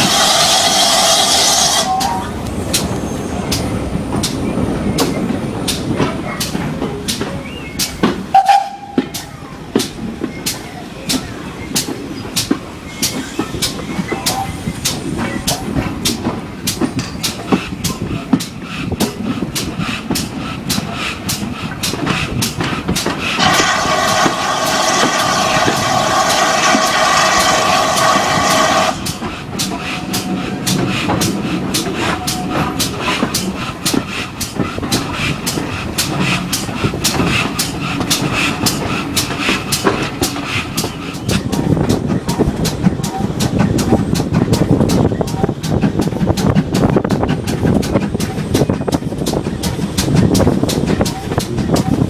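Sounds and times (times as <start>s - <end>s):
train rumbling: 0.0s - 52.0s
rapid wheel clacking: 14.8s - 52.0s.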